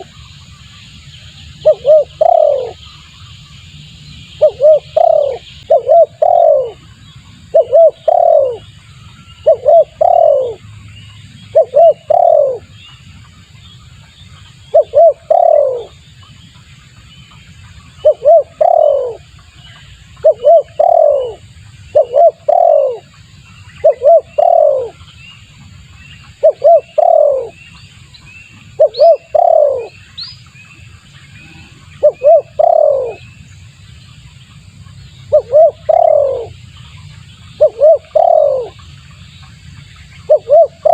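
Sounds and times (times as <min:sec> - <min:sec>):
small birds chirping: 0:00.0 - 0:40.9
dove cooing: 0:01.6 - 0:02.8, 0:04.4 - 0:08.7, 0:09.3 - 0:10.6, 0:11.5 - 0:12.7, 0:14.7 - 0:16.0, 0:18.0 - 0:19.3, 0:20.2 - 0:23.2, 0:23.8 - 0:25.0, 0:26.3 - 0:27.6, 0:28.7 - 0:30.0, 0:31.4 - 0:33.3, 0:35.3 - 0:36.6, 0:37.6 - 0:38.8, 0:40.2 - 0:40.9.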